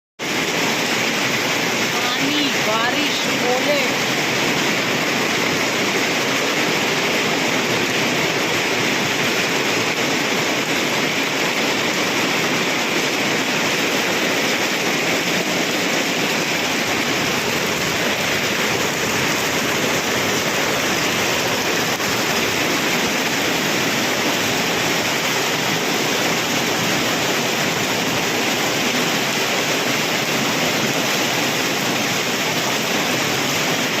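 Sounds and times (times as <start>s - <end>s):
heavy rain and hail pelting: 0.2s - 34.0s.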